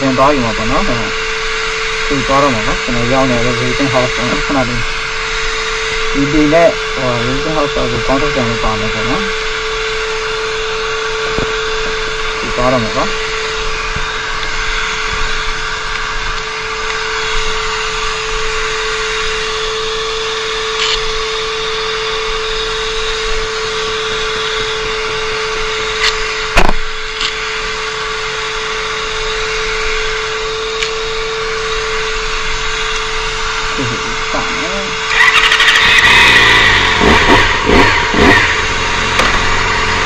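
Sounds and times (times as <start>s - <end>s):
motorcycle engine idling: 0.0s - 40.0s
sharp knock: 26.6s - 26.8s.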